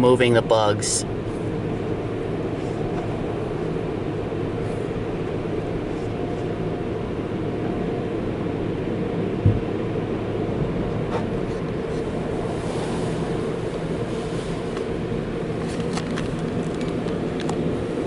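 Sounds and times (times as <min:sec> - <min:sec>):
car wash machinery rumble: 0:00.0 - 0:18.0
short thump: 0:09.4 - 0:09.7.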